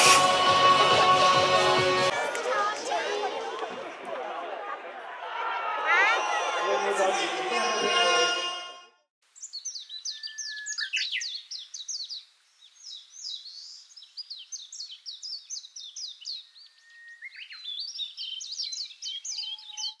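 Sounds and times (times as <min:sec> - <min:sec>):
birds chirping: 0:09.4 - 0:20.0.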